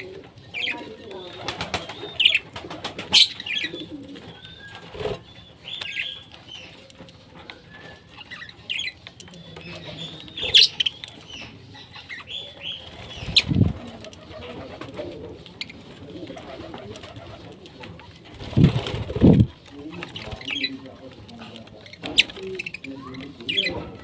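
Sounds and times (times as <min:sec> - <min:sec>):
parrots chirping: 0:00.0 - 0:02.5, 0:03.1 - 0:13.8.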